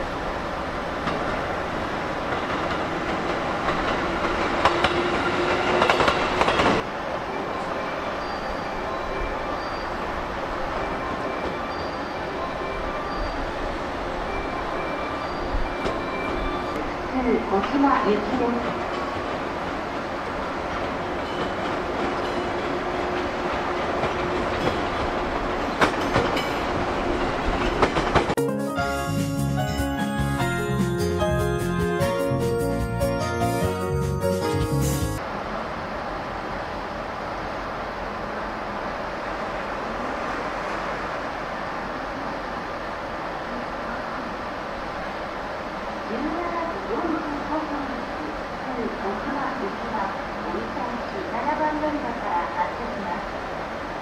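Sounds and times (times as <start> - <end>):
electric train running past: 0.0 - 54.0
wheels clacking over rail joints: 20.7 - 28.4
music: 28.4 - 35.2.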